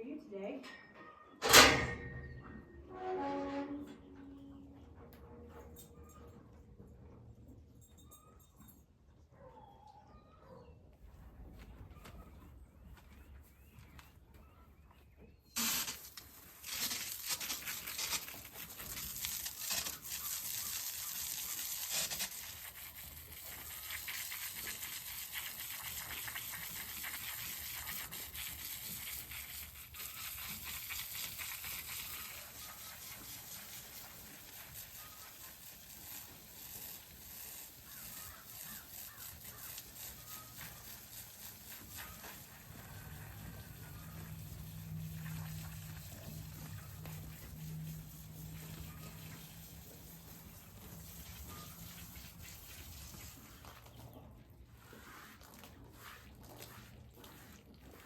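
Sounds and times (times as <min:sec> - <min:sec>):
garden hose spraying water: 0:15.6 - 0:58.0.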